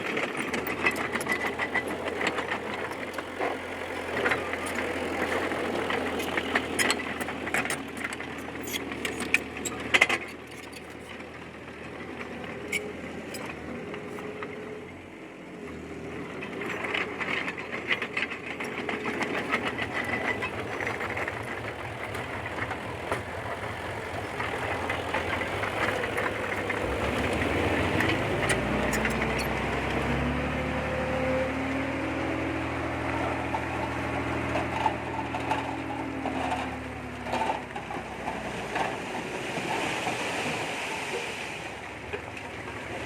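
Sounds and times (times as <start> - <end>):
bulldozer diesel engine running: 0.0 - 43.0.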